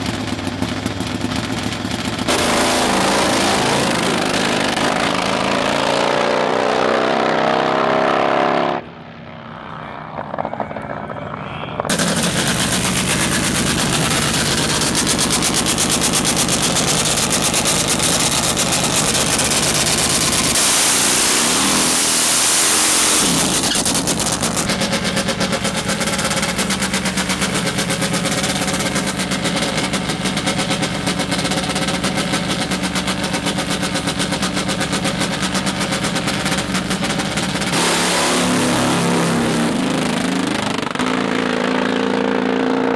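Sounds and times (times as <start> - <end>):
motorcycle engine staccato: 11.9 - 20.6, 23.4 - 37.9.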